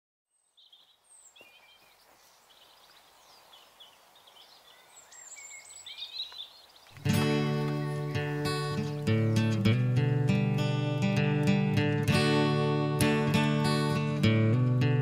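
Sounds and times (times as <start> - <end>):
songbirds chirping and whistling: 0.3 - 10.7
faint outdoor background noise: 0.3 - 15.0.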